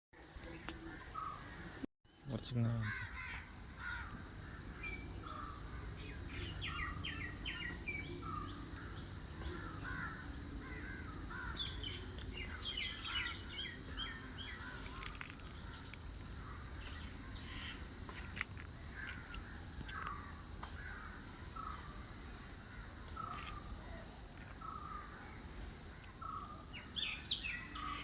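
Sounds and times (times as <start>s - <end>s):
crows cawing: 2.7s - 24.0s.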